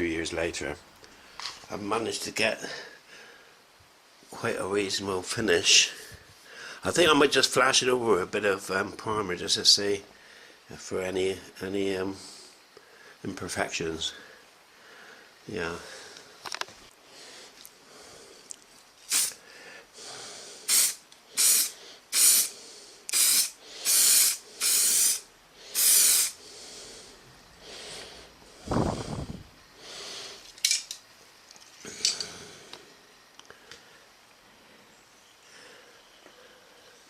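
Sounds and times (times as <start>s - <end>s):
spray can hissing: 19.1s - 19.4s, 20.7s - 26.4s.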